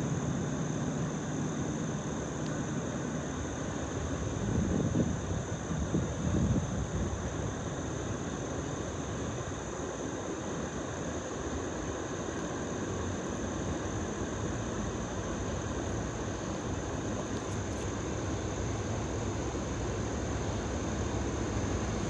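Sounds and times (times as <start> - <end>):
distant diesel locomotives rumbling: 19.0 - 22.0.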